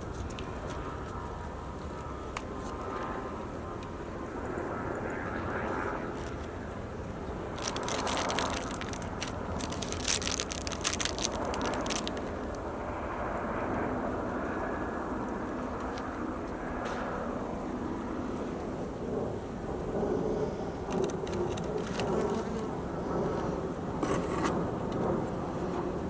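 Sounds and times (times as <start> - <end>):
crackling and clicking handling: 0.0 - 4.0, 5.8 - 12.7, 15.7 - 17.0, 20.9 - 22.8
low outdoor rush: 0.0 - 26.0.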